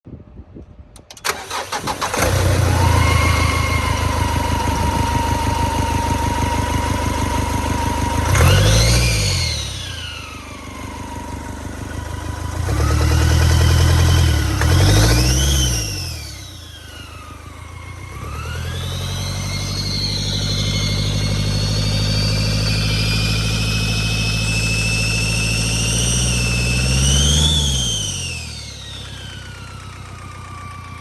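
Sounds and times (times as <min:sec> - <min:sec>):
diesel engine cranking and idling: 0:00.9 - 0:31.0
engine revving: 0:01.2 - 0:31.0.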